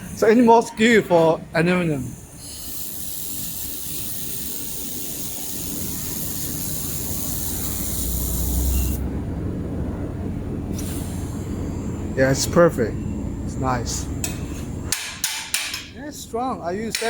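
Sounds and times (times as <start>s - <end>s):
laser welder hissing: 1.8s - 9.0s.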